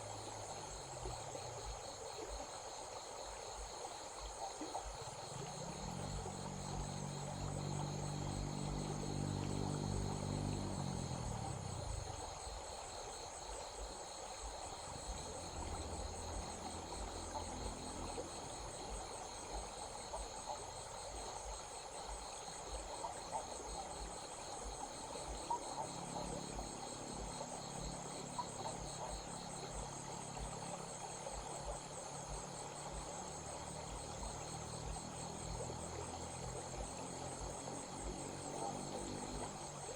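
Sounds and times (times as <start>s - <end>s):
flowing stream: 0.0s - 39.9s
insects chirping: 0.0s - 39.9s
low engine-like hum: 5.3s - 12.4s, 15.0s - 19.0s.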